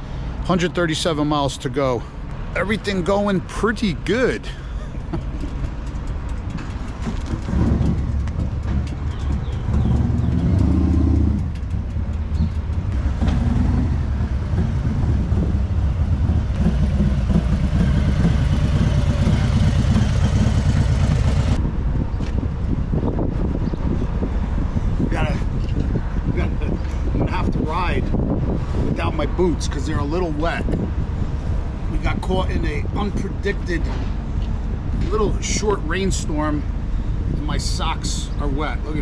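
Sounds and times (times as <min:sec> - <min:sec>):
wind and road noise: 0:00.0 - 0:39.0
motorcycle engine running: 0:05.1 - 0:21.6.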